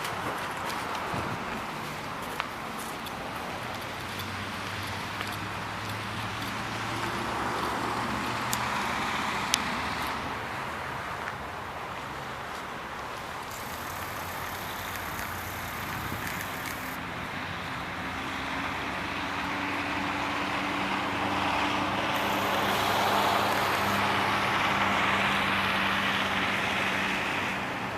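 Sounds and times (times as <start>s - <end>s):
low motor whine: 22.1s - 24.6s.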